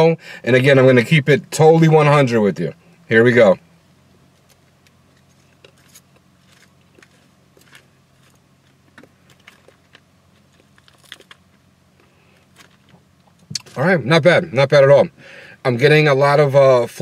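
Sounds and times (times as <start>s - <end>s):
steady low hum: 0.0s - 17.0s
chewing with soft crunches: 4.4s - 13.8s.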